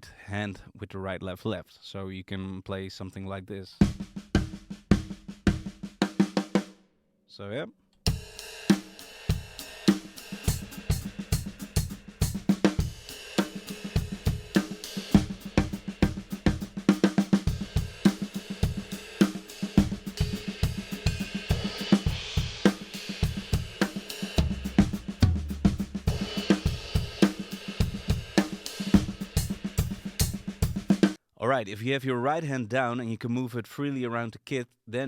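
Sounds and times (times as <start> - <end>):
bass drum kicking: 3.8 - 6.0, 24.4 - 27.2
snare drum: 3.8 - 6.7, 8.1 - 31.2
hi-hat: 8.1 - 31.2.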